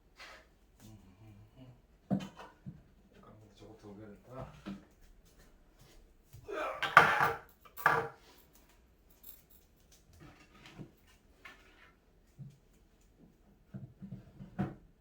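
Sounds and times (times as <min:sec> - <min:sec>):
rustles clicks and knocks of parts: 0:07.0 - 0:11.6.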